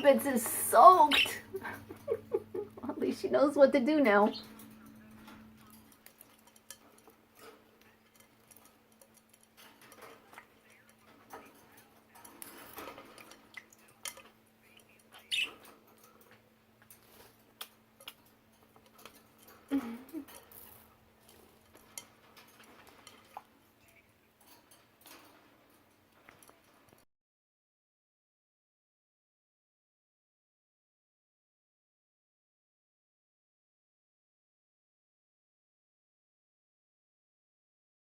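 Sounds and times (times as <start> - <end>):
budgies clicking and tapping: 0.0 - 3.2, 3.8 - 27.0.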